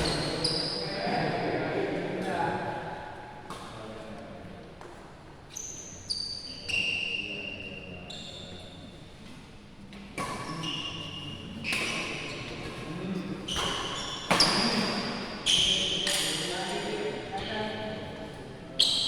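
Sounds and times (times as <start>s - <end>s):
players' voices: 0.0s - 3.0s
shoes squeaking on court: 13.5s - 16.9s, 18.8s - 19.0s.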